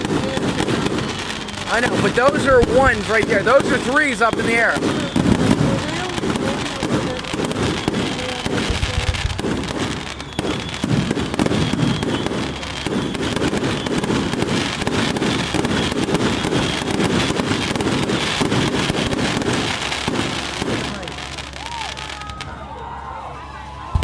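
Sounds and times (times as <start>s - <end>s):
fireworks booming and crackling: 0.0s - 22.7s, 23.8s - 24.0s.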